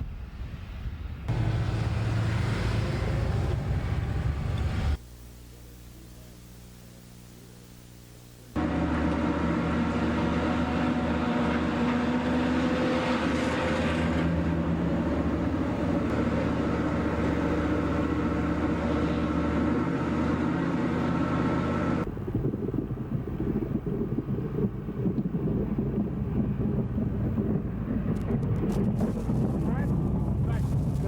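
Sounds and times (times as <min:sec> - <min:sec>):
engine running: 0:00.2 - 0:05.0, 0:08.5 - 0:31.0
rough wind-like noise: 0:22.0 - 0:31.0.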